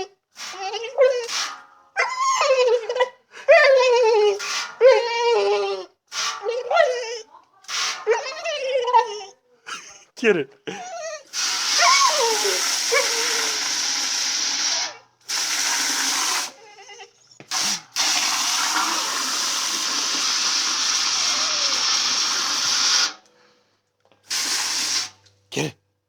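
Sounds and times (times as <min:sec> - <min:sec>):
dog whining: 0:00.0 - 0:01.3, 0:02.0 - 0:07.4, 0:08.0 - 0:13.6, 0:16.4 - 0:18.4
water spraying hiss: 0:11.4 - 0:16.5, 0:17.5 - 0:23.2, 0:24.3 - 0:25.2.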